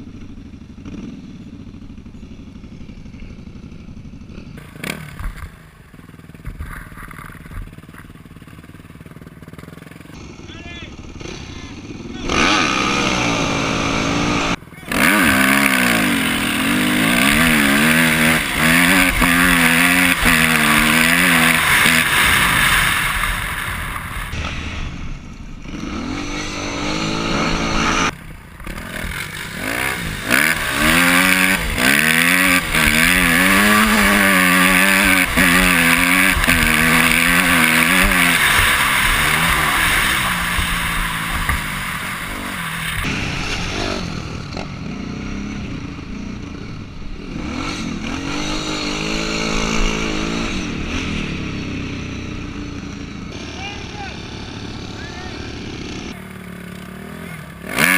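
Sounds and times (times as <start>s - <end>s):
dirt bike engine revving: 0.0s - 57.9s
quad engine revving: 2.6s - 57.9s.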